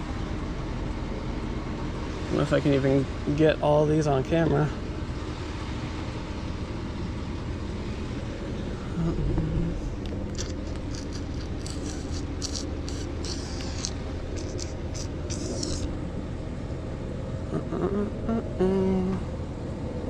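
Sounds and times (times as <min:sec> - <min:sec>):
vehicle engine idling: 0:00.0 - 0:20.0
high hissy scrapes: 0:10.4 - 0:15.9
pitch-bending tone: 0:17.5 - 0:19.2.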